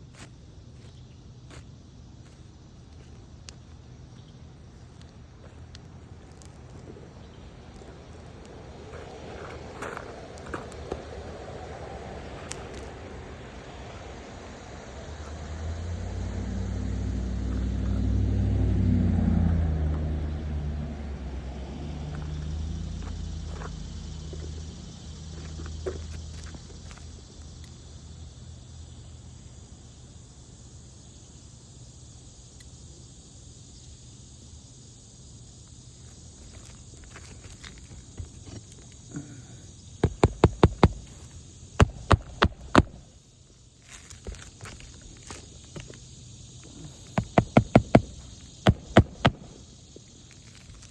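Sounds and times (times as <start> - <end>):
vehicle engine passing by: 11.6 - 24.9
hammer striking nails: 40.0 - 41.2, 41.8 - 43.0, 47.2 - 49.6.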